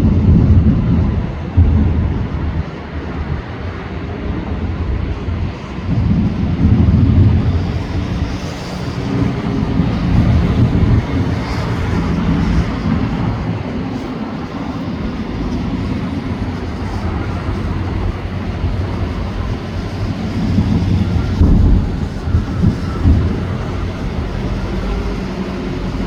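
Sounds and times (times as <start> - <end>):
rumbling fireworks booms: 0.0 - 4.4, 14.9 - 25.4.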